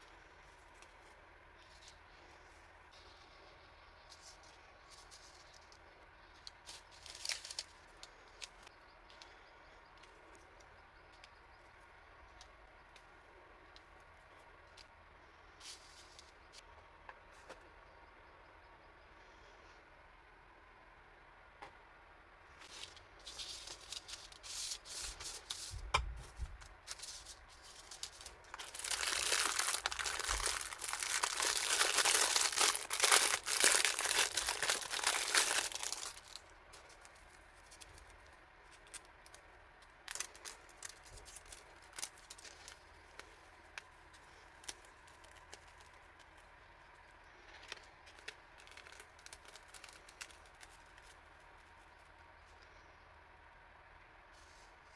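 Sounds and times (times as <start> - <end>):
packaging crinkling and tearing: 4.2 - 8.7, 22.6 - 25.7, 26.8 - 46.4, 47.4 - 51.7.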